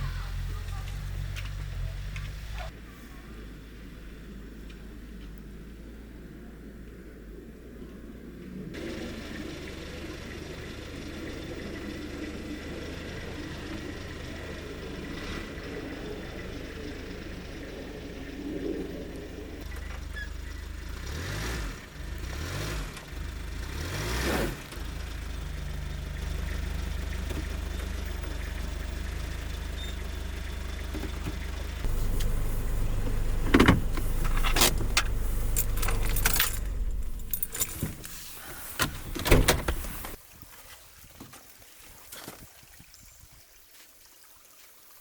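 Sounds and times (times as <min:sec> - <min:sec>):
truck engine rumbling: 0:00.0 - 0:40.2
sharp clicks and knocks: 0:32.0 - 0:38.2.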